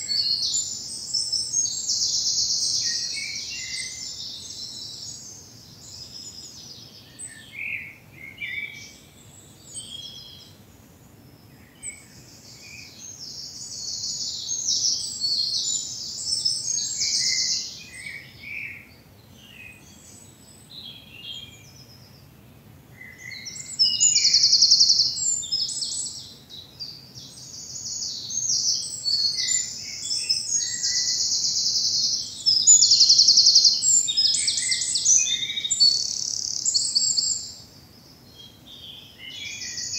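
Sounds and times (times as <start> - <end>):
soft bird chirps: 0.0 - 22.4, 23.0 - 39.9
songbird trilling: 11.8 - 19.8, 23.0 - 37.7.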